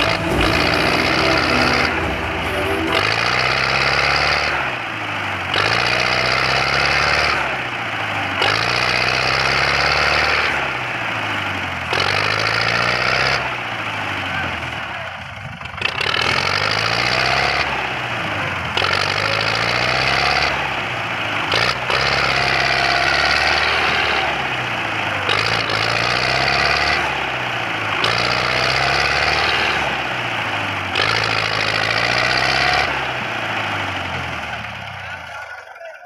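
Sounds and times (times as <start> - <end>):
tractor diesel engine running: 0.0 - 35.7.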